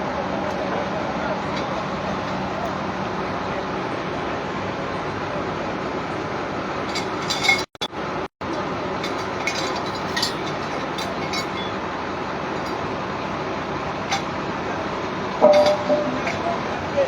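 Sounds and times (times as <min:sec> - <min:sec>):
steady background noise: 0:00.0 - 0:17.0
light metallic clinks: 0:09.0 - 0:11.8, 0:15.5 - 0:16.6.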